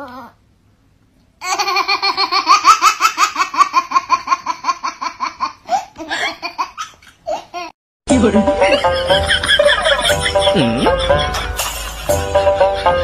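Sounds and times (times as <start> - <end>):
high-pitched laughter: 8.6 - 13.0.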